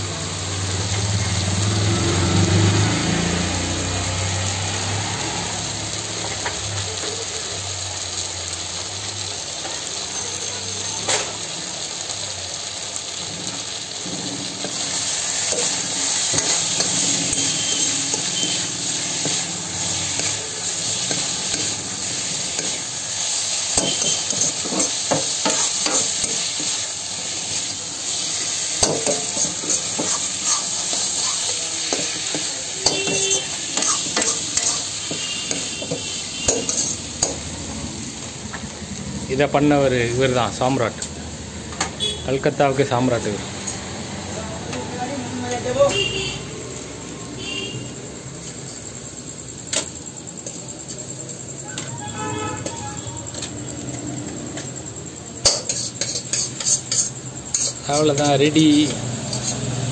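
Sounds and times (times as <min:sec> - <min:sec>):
food sizzling in a wok: 0:00.0 - 0:59.9
metal ladle scraping a pan: 0:14.1 - 0:37.5, 0:55.4 - 0:59.9.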